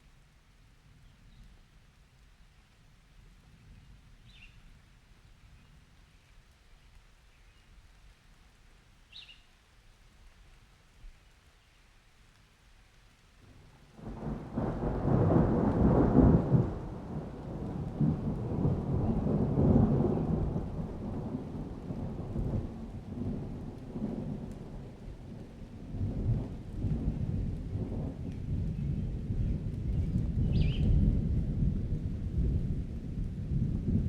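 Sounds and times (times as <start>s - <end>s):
rain: 0.0s - 34.0s
rolling thunder rumble: 13.6s - 34.0s.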